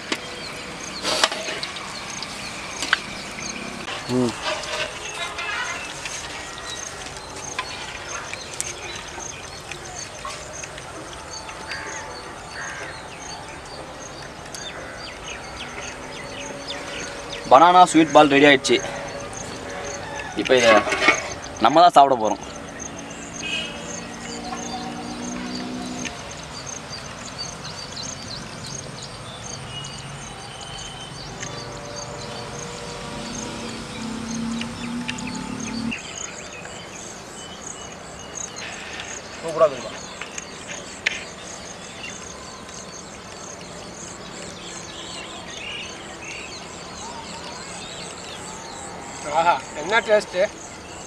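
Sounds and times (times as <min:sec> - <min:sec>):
birds chirping: 0:00.0 - 0:51.0.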